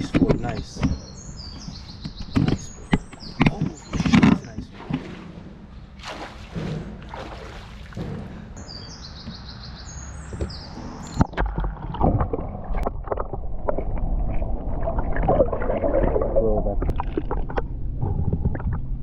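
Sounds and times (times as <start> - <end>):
water sloshing: 0.0 - 18.8
boat low rumble: 0.0 - 19.0
knocks against metal hull: 6.4 - 9.4.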